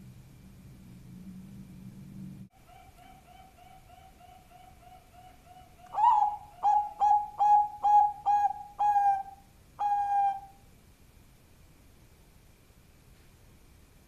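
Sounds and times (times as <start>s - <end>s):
dove cooing: 2.6s - 10.6s.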